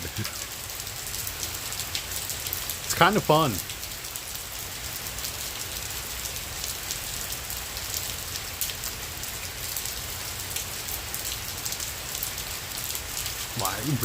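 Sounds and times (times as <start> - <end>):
heavy rain downpour: 0.0 - 14.0
raindrops ticking on surface: 0.0 - 14.0.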